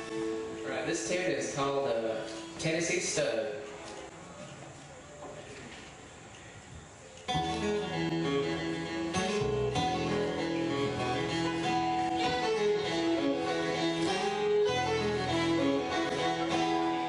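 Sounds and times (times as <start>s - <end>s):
double bass: 0.0s - 0.6s, 7.3s - 17.0s
acoustic guitar strumming: 0.0s - 3.2s, 7.3s - 17.0s
fiddle melody: 7.3s - 17.0s.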